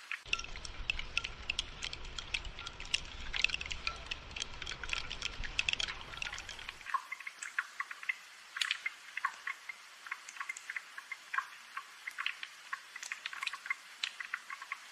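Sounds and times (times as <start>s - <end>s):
rain dripping and pattering: 0.0s - 14.9s.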